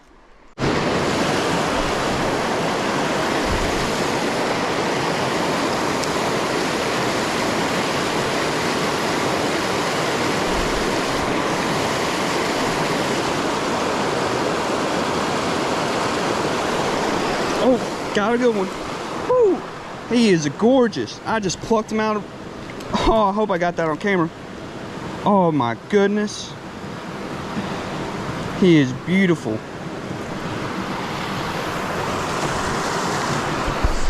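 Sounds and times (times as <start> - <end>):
water rushing over rocks: 0.6 - 25.5, 26.8 - 34.0.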